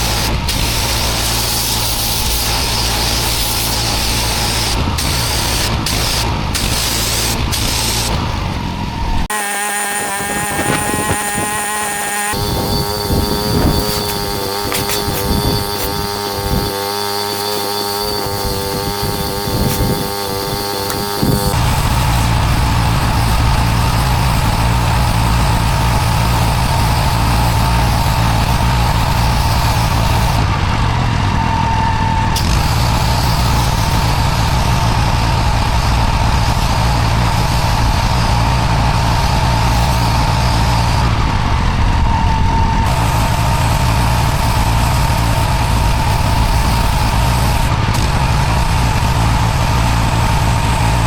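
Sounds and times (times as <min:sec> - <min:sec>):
water jet hissing on paving: 0:00.0 - 0:08.5, 0:09.3 - 0:30.5, 0:42.9 - 0:51.0
pressure washer engine running: 0:00.0 - 0:42.2, 0:42.8 - 0:51.0.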